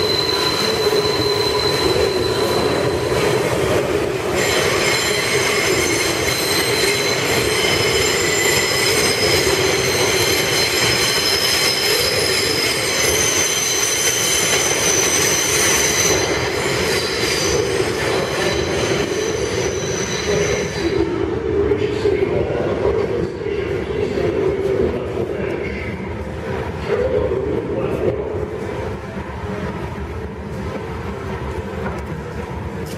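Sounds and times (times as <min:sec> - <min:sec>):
train wheels squealing: 0:00.0 - 0:03.6, 0:04.2 - 0:21.1.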